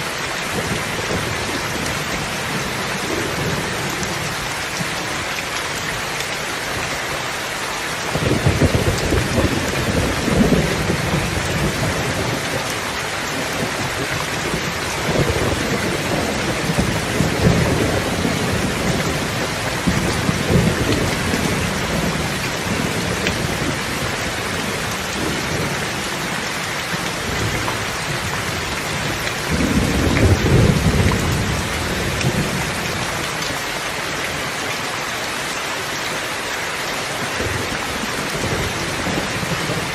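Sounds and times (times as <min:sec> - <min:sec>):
heavy rain hissing: 0:00.0 - 0:39.9
thunder rumbling: 0:08.1 - 0:12.7, 0:13.4 - 0:33.2.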